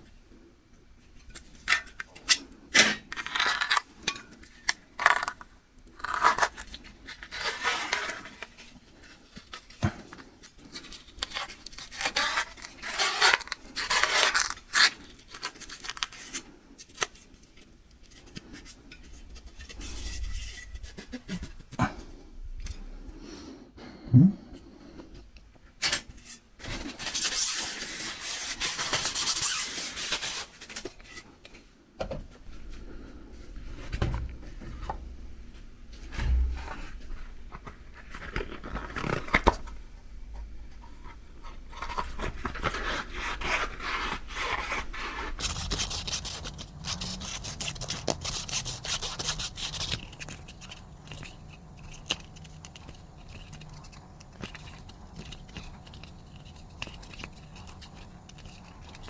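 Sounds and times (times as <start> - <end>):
hands scraping a bicycle tire: 9.9 - 17.4, 18.0 - 22.2, 26.2 - 31.3, 41.4 - 59.0.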